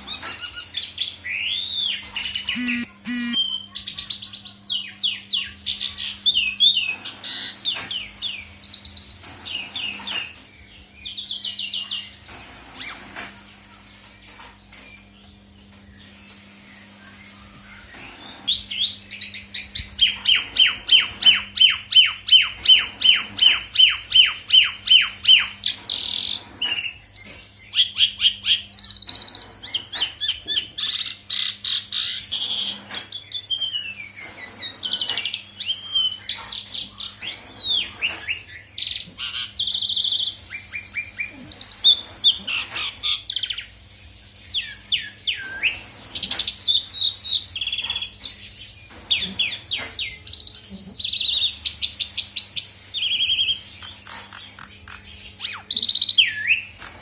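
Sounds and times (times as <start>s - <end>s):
starling singing: 1.3s - 3.5s.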